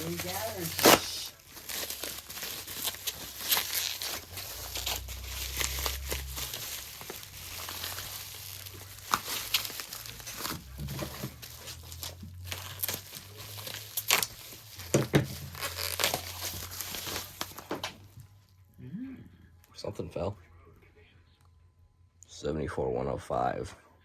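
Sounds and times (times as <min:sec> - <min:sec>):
packing paper crumpling and tearing: 0:00.0 - 0:18.2.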